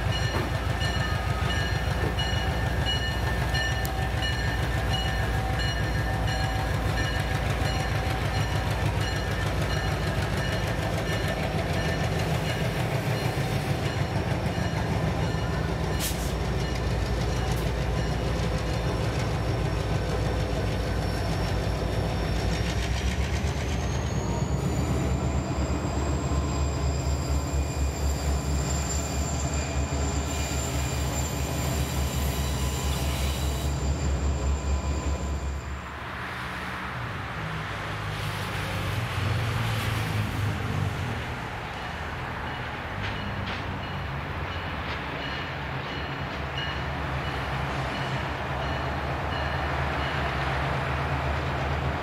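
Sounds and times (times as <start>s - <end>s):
train wheels rumbling: 0.0s - 52.0s
high wheel squeal: 23.7s - 36.0s.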